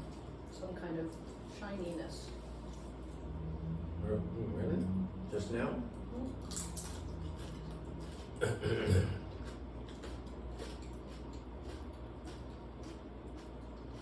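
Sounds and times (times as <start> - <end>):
steady low hum: 0.0 - 14.0
person coughing: 8.4 - 9.3.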